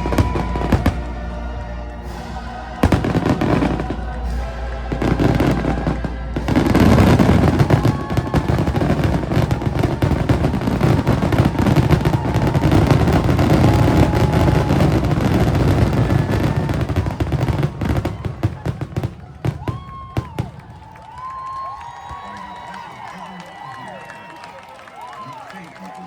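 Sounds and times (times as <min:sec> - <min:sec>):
music soundtrack: 0:00.0 - 0:19.6
fireworks bangs and crackle: 0:00.0 - 0:22.3.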